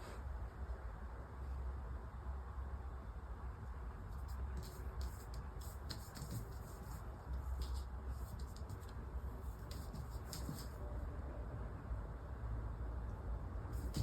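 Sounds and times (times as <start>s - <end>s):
light clicks and scratches: 4.1s - 10.8s, 13.7s - 14.0s.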